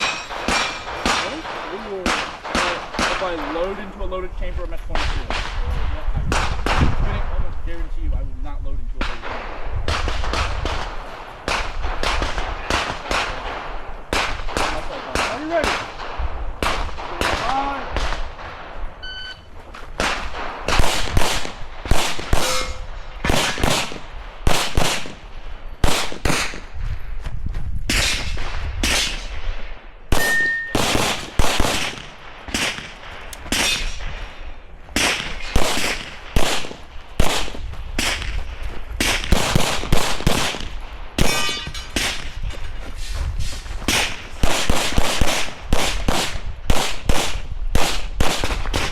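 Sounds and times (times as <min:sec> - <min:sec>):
metallic clangs of steel targets: 0:00.0 - 0:01.5, 0:22.4 - 0:22.9, 0:30.2 - 0:30.9, 0:33.5 - 0:34.3, 0:41.2 - 0:42.8
airsoft pistol shots: 0:00.0 - 0:03.4, 0:20.0 - 0:25.2, 0:25.8 - 0:26.6, 0:27.9 - 0:29.4, 0:30.1 - 0:34.1, 0:35.0 - 0:38.4, 0:39.0 - 0:42.3.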